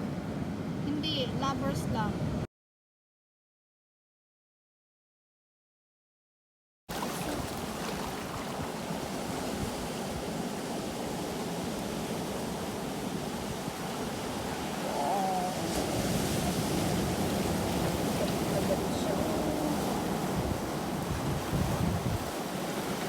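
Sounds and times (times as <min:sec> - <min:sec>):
sea waves washing on shore: 0:06.9 - 0:23.0.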